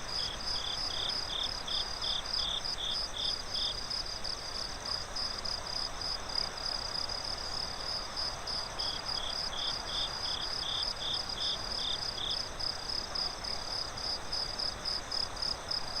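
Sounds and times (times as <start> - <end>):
crickets chirping: 0.0 - 16.0
lower-pitched cricket chirping: 0.0 - 16.0
night ambience hiss: 0.0 - 16.0.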